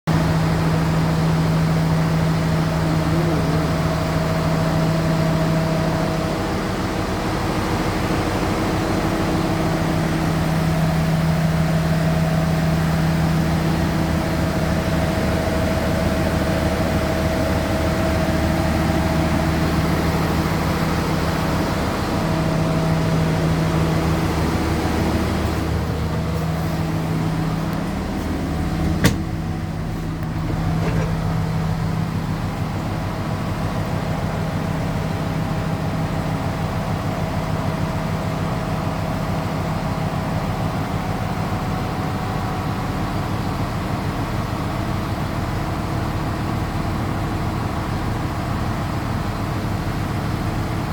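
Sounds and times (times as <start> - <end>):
vehicle engine humming: 0.1 - 36.6
road noise: 19.0 - 33.2.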